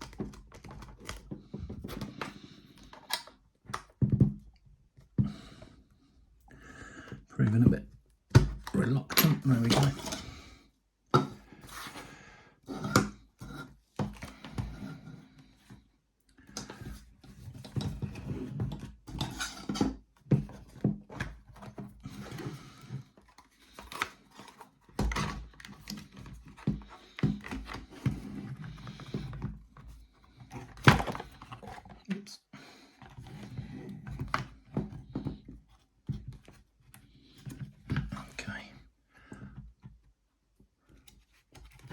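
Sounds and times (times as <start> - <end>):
plastic parts clicking and knocking: 0.0 - 4.6, 8.3 - 10.3, 16.4 - 32.1.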